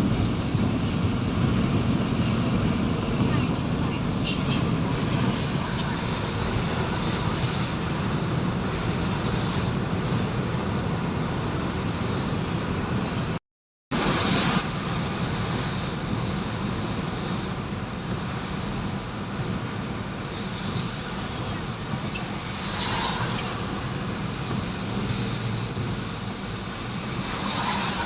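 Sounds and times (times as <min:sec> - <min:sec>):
vehicle road noise: 0:00.0 - 0:28.0.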